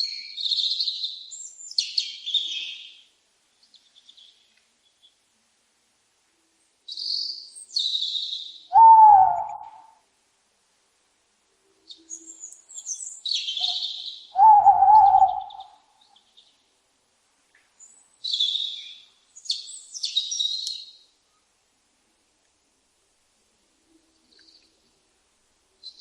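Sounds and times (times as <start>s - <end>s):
lower wavering bird call: 8.7s - 10.0s, 13.5s - 15.9s
birds chirping and singing: 11.9s - 16.4s.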